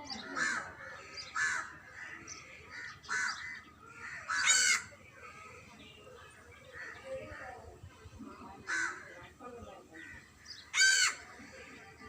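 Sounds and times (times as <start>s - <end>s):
crows cawing: 0.1s - 5.8s, 8.6s - 9.2s, 10.0s - 12.0s.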